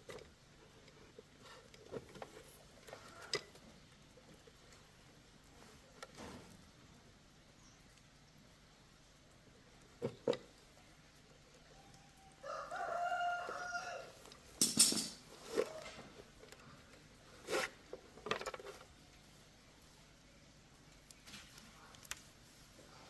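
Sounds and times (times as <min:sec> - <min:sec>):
rooster crowing: 0:11.7 - 0:14.2.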